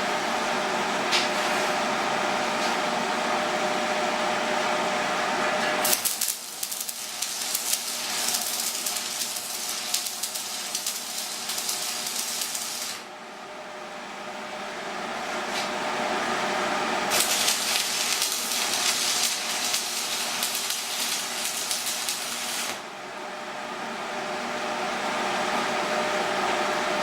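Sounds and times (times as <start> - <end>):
mechanical hum: 0.0 - 27.0
welding arc crackling: 5.8 - 13.0, 17.1 - 22.8.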